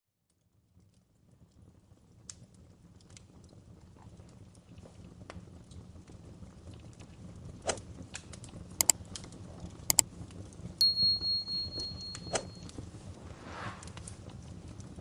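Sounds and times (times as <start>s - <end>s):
wood fire crackling and popping: 0.6s - 15.0s
thin high whistle: 10.8s - 12.7s.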